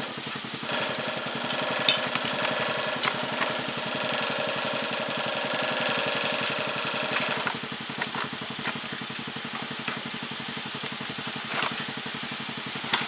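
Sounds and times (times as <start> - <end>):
high engine whine: 0.0 - 13.0
small engine idling: 0.0 - 13.0.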